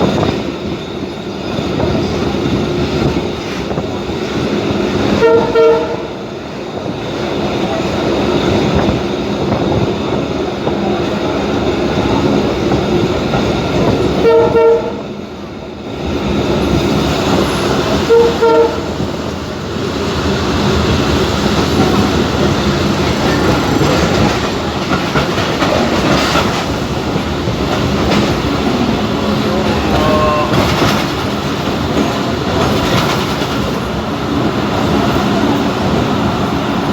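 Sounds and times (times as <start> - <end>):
train wheels rumbling on track: 0.0 - 36.9
train horn blasts: 5.1 - 6.2, 14.2 - 15.1, 18.0 - 19.0, 29.3 - 30.9.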